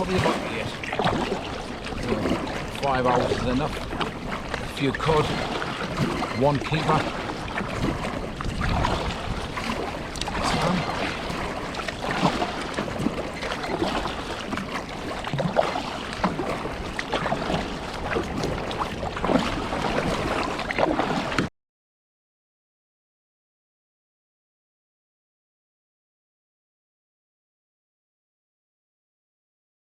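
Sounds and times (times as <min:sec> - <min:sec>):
wind buffeting microphone: 0:00.0 - 0:20.7
water splashing around a kayak: 0:00.0 - 0:21.5.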